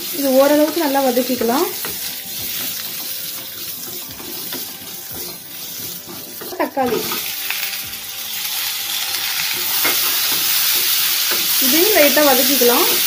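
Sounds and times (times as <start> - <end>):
onions sizzling in hot oil: 0.0 - 13.0
spatula knocking against pan: 0.7 - 7.1.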